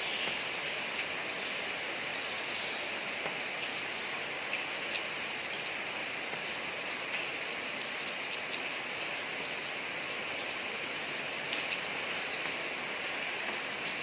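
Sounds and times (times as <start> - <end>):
rain hissing on a street: 0.0 - 14.0
faint raindrop ticks: 2.5 - 10.7, 11.4 - 14.0.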